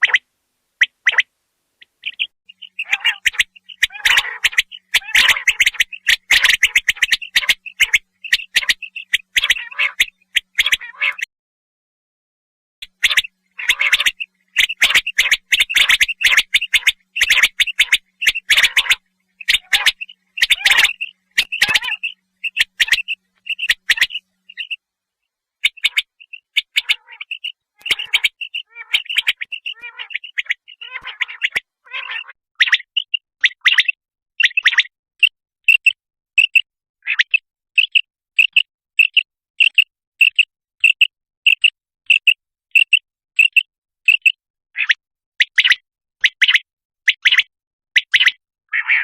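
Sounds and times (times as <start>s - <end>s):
quail calling short high notes: 2.0s - 11.3s, 12.9s - 24.8s, 25.6s - 32.4s.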